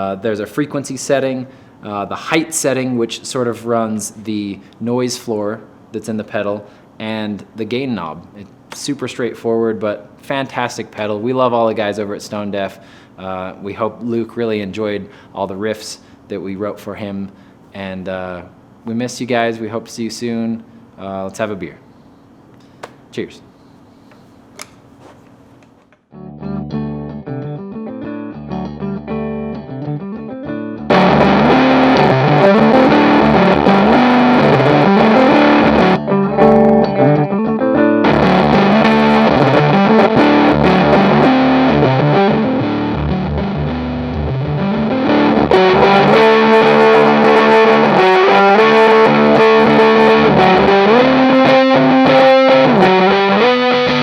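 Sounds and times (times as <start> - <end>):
distorted electric guitar riff: 26.2 - 54.0.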